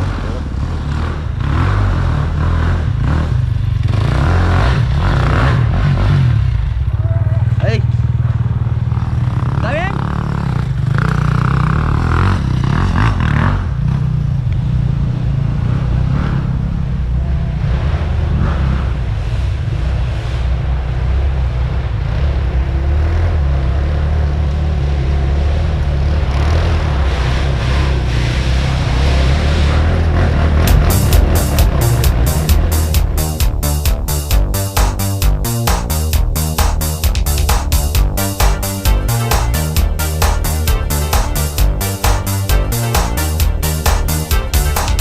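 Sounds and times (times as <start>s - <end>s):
dirt bike engine running: 0.0s - 19.4s, 21.4s - 45.0s.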